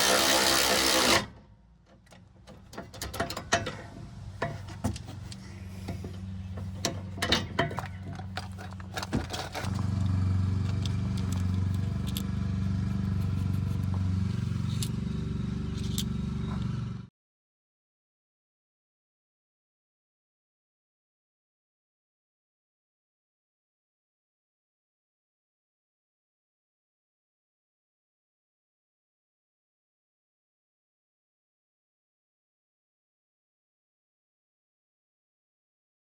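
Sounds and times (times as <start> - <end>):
vehicle engine humming: 2.0 - 17.1.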